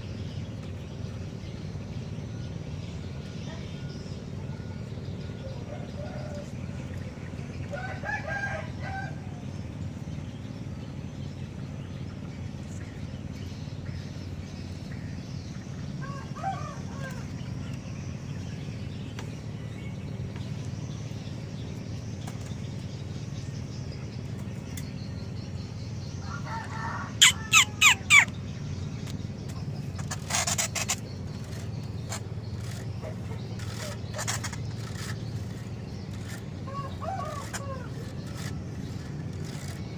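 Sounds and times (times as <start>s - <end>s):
bird calls: 0.0s - 39.9s
steady low hum: 0.0s - 39.9s
loud sharp bird chirps: 23.9s - 39.8s.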